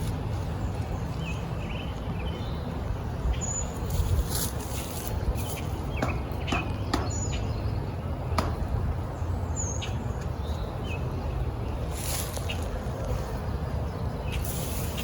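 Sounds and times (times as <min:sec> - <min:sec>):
sharp clicks and knocks: 0:06.0 - 0:07.2, 0:08.3 - 0:08.7.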